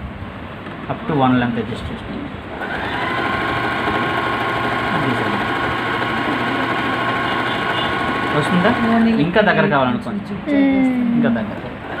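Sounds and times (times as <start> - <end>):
sewing machine running: 2.5 - 9.6.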